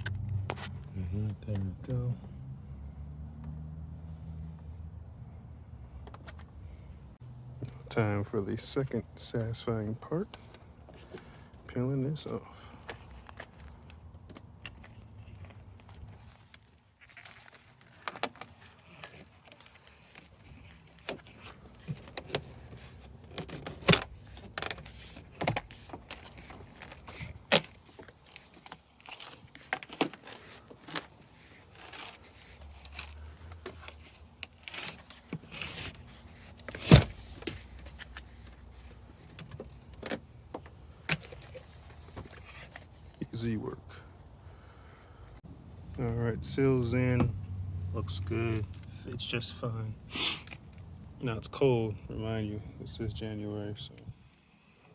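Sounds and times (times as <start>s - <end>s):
rubber door seal clicks and rustles: 12.8s - 42.6s.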